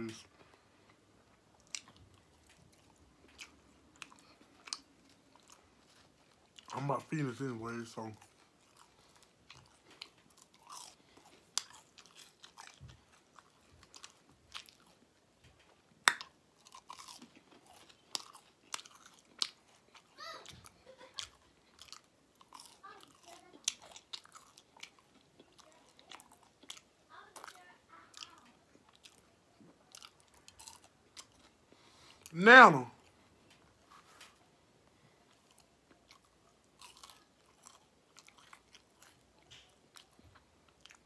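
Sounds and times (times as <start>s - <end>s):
chewing and crunching food: 0.0s - 41.0s
mouth clicks and smacks: 16.0s - 16.4s.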